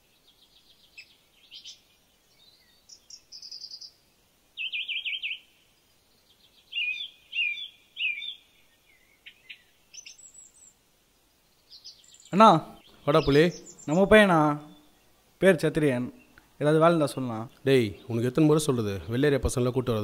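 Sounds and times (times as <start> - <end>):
birds chirping: 0.0 - 20.0
bird trilling: 2.9 - 4.0, 4.6 - 5.5, 6.7 - 10.6, 11.7 - 15.0
falling whistled bird calls: 4.6 - 5.5, 6.7 - 10.8.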